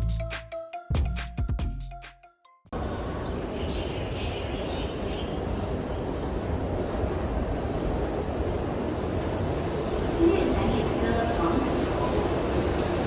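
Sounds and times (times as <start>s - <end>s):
low station rumble: 2.8s - 13.0s.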